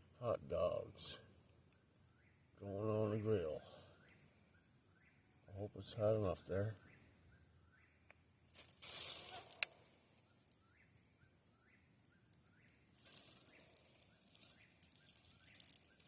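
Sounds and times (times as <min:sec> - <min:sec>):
high insect trill: 0:00.0 - 0:16.0
rustling: 0:08.5 - 0:10.6, 0:12.9 - 0:16.0.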